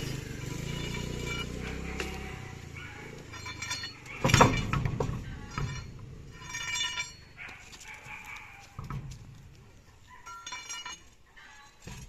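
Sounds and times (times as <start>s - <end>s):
loud ringing metal clank: 0.0s - 2.4s, 3.2s - 7.4s, 10.2s - 12.0s
metal clanking and clinking: 0.0s - 12.0s.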